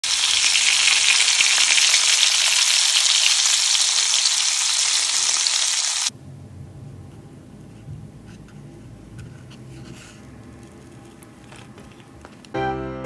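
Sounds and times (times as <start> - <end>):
shrimp sizzling in frying pan: 0.0 - 6.1.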